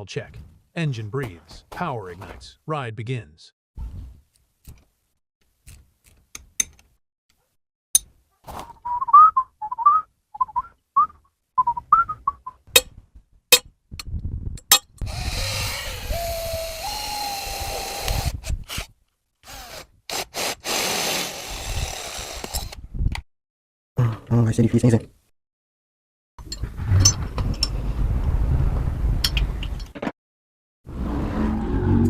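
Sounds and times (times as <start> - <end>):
person whistling: 8.6 - 12.6.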